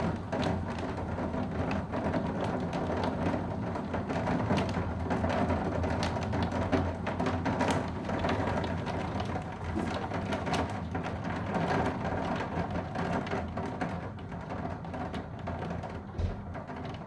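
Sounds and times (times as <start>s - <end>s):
heavy rain on hard surface: 0.0s - 17.0s.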